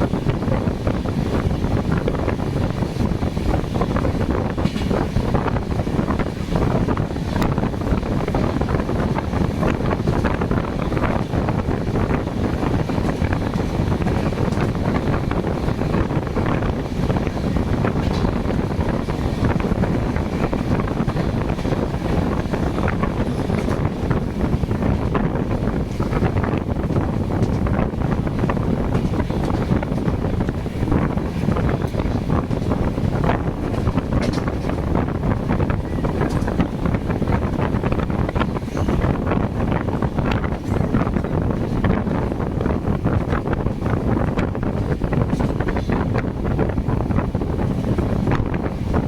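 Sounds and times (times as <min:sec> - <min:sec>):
train rumbling with clicks: 0:00.0 - 0:49.0
wind buffeting microphone: 0:00.0 - 0:49.0.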